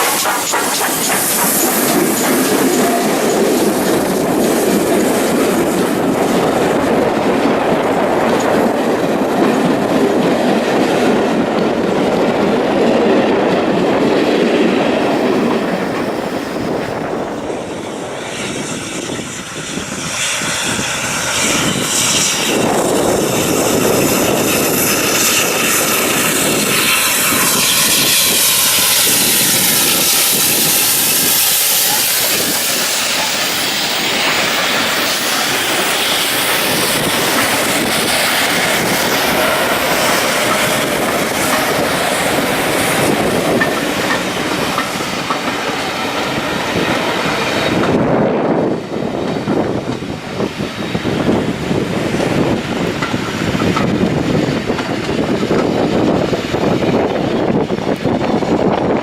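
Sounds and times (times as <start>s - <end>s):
wheels clattering over rail joints: 0.0s - 12.3s, 22.6s - 48.1s
steam train running past: 0.0s - 59.0s.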